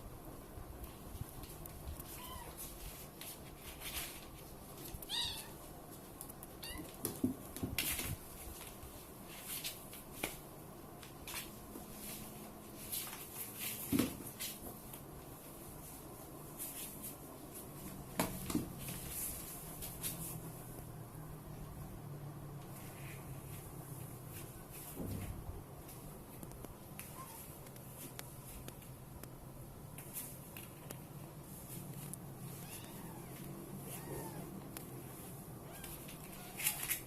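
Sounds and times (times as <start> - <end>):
cats scuffling: 0.8 - 20.9, 29.9 - 37.0
wavering cat cry: 32.6 - 34.6.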